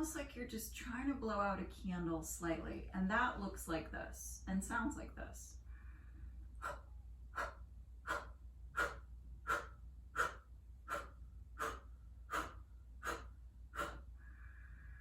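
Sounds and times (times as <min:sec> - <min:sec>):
sharp breath exhales: 0:05.7 - 0:15.0.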